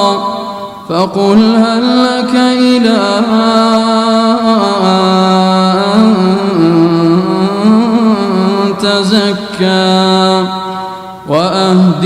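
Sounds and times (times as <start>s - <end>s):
person chanting recitation: 0.0s - 12.0s.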